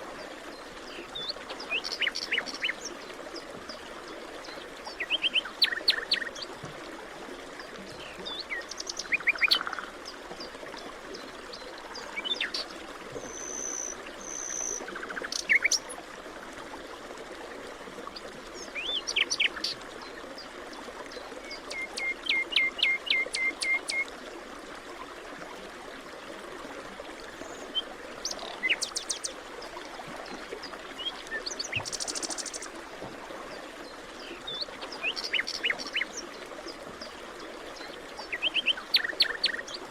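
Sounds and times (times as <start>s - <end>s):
running water: 0.0s - 39.9s
birds chirping and trilling: 28.2s - 29.3s, 34.2s - 36.2s.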